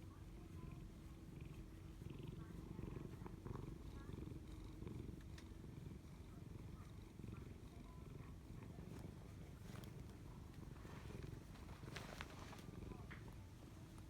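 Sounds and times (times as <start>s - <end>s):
cat purring: 0.0s - 14.0s
faint clicks: 5.2s - 5.5s.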